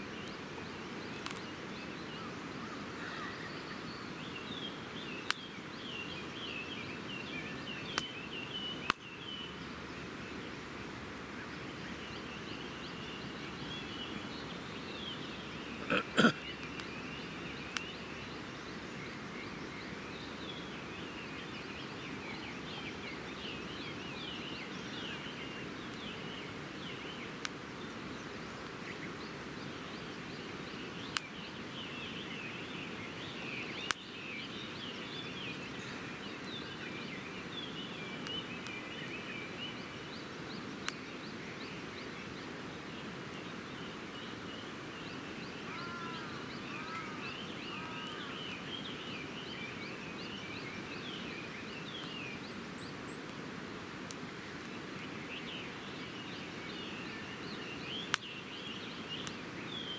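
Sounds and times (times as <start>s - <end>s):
small birds chirping: 0.0s - 59.9s
campfire burning and popping: 1.0s - 1.5s, 57.3s - 59.5s.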